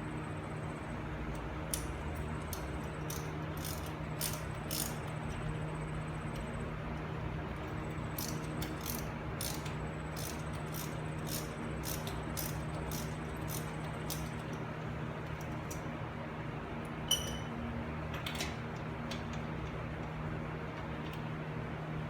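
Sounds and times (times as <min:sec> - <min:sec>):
steady low hum: 0:00.0 - 0:18.1
ratchet wrench clicking: 0:01.7 - 0:05.1, 0:08.1 - 0:14.5.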